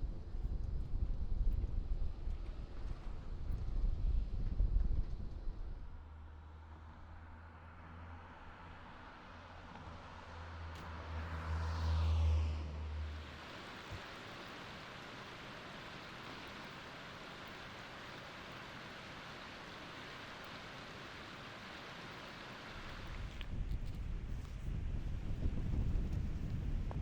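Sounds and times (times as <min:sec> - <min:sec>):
vehicle rumbling past: 0:06.2 - 0:13.5
stream rushing over rocks: 0:13.1 - 0:23.4.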